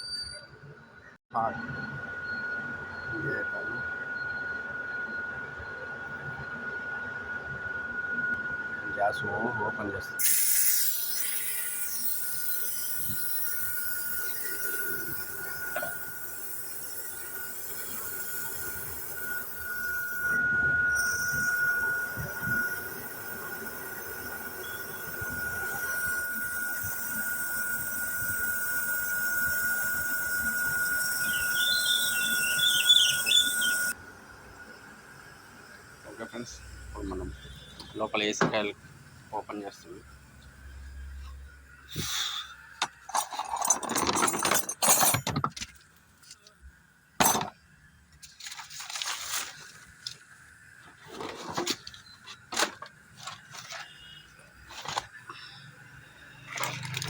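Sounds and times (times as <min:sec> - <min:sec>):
irregular squeals: 0:00.0 - 0:06.6, 0:10.2 - 0:34.0, 0:36.1 - 0:38.8, 0:50.7 - 0:57.0
whistle-like tone: 0:00.0 - 0:06.8, 0:08.0 - 0:34.0, 0:53.7 - 0:54.4
gas hissing from valve: 0:10.2 - 0:34.0, 0:41.9 - 0:42.6.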